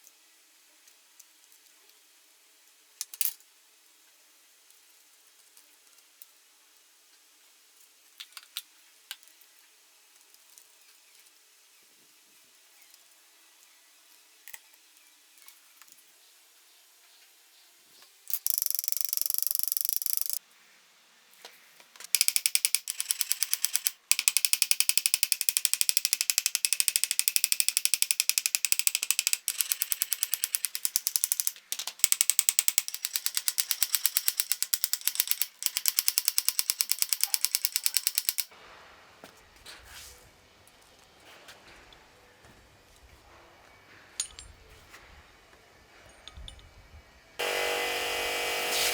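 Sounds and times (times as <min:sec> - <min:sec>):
metal tool hissing: 0:47.4 - 0:48.9.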